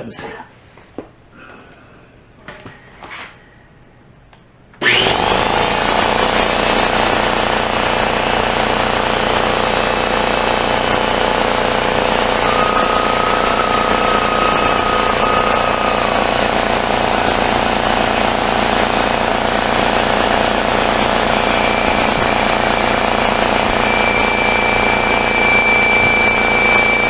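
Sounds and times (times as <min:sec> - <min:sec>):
air compressor running: 0:04.8 - 0:27.0
thin steady whistle: 0:10.9 - 0:27.0.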